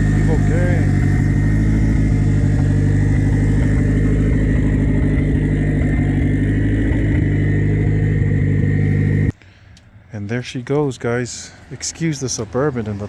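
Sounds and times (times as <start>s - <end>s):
car engine idling: 0.0s - 9.4s.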